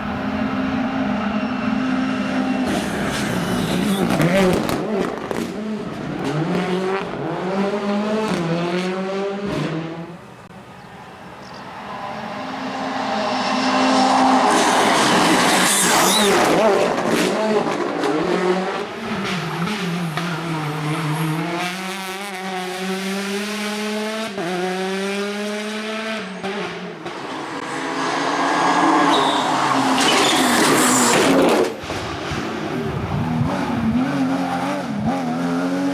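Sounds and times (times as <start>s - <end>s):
rally car engines revving: 0.0s - 35.9s
tyre squeal: 1.2s - 4.6s, 10.8s - 16.9s, 27.1s - 31.8s.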